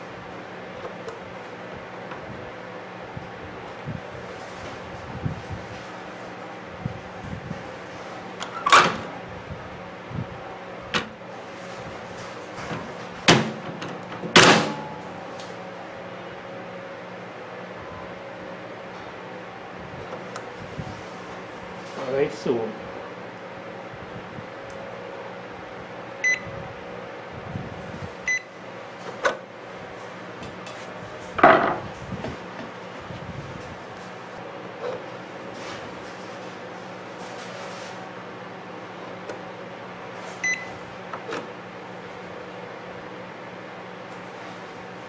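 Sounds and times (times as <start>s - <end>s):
microwave door latch clunks: 8.4s - 9.2s, 11.0s - 11.2s, 13.3s - 15.0s
microwave keypad beeps: 26.2s - 26.5s, 28.3s - 28.5s, 40.4s - 40.8s.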